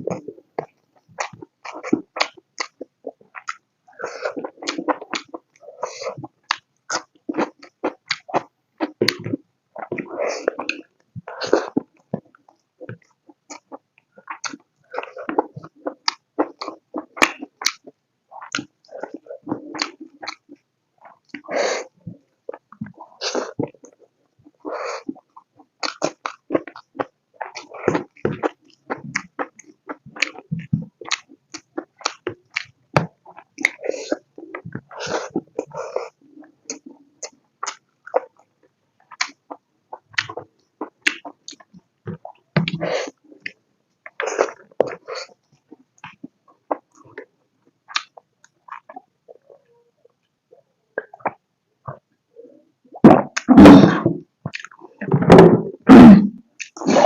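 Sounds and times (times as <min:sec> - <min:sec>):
wet chewing and lip smacks: 0:11.7 - 0:21.4, 0:25.2 - 0:33.8, 0:36.4 - 0:47.3, 0:47.9 - 0:49.6, 0:54.4 - 0:55.1.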